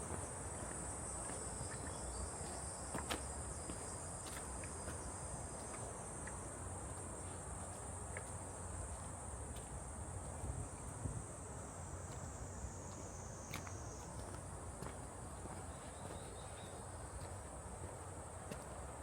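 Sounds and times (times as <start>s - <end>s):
footsteps on a trail: 0.0s - 11.3s, 12.0s - 19.0s
insects chorus: 0.0s - 19.0s.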